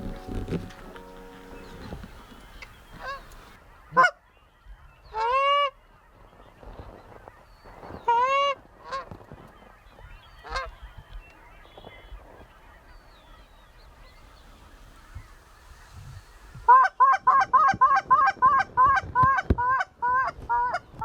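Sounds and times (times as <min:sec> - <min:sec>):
geese honking: 0:00.0 - 0:04.2, 0:12.2 - 0:20.9.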